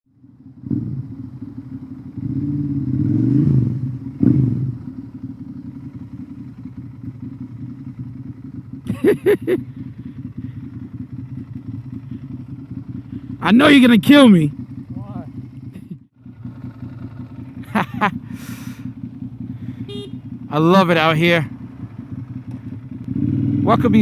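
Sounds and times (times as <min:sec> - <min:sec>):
motorcycle engine revving: 0:00.1 - 0:24.0
short sharp engine bursts: 0:17.7 - 0:20.3.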